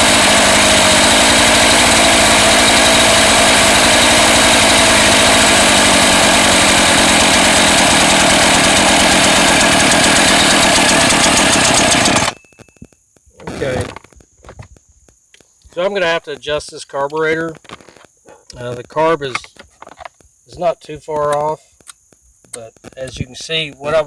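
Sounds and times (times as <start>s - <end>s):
chainsaw idling high: 0.0s - 12.4s.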